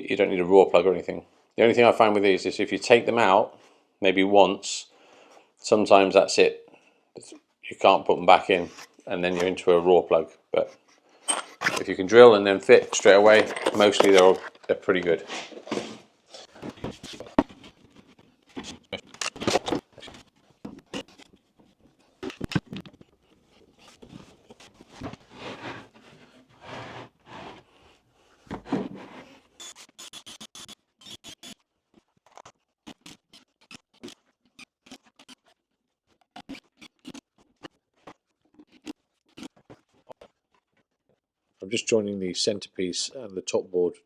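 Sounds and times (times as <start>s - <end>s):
wooden boards scraping and knocking: 24.9s - 27.7s.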